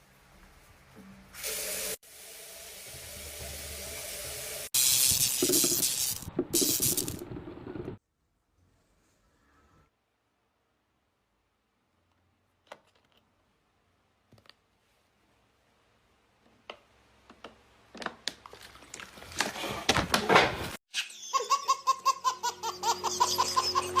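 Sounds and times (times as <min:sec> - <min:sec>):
repeated laugh sound effect: 0:20.9 - 0:24.0
laughter: 0:21.0 - 0:24.0.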